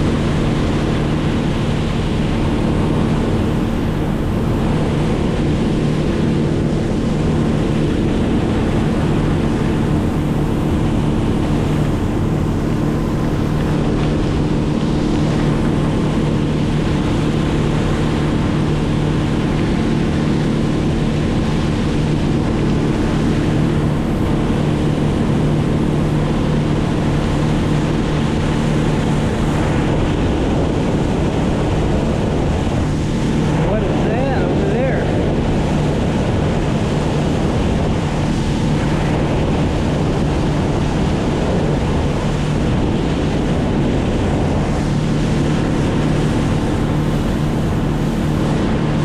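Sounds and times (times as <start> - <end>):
engine droning steadily: 0.0 - 49.0
wind buffeting microphone: 0.0 - 49.0.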